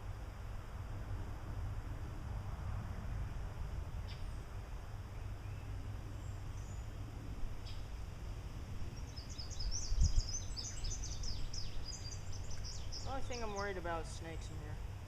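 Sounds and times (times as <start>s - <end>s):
low outdoor rumble: 0.0s - 15.0s
songbird chirping: 4.0s - 8.0s, 8.8s - 14.9s.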